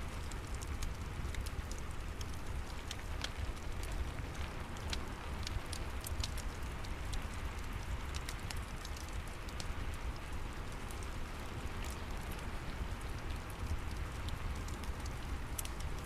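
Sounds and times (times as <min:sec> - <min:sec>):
fire crackling and popping: 0:00.0 - 0:16.0
steady rain: 0:00.0 - 0:16.0.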